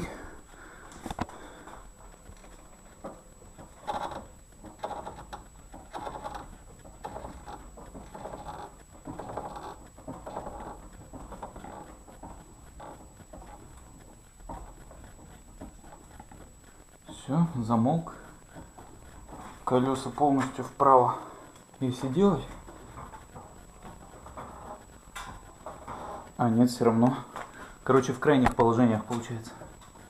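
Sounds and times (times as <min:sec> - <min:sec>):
suspension strut creaking: 0:00.0 - 0:30.0.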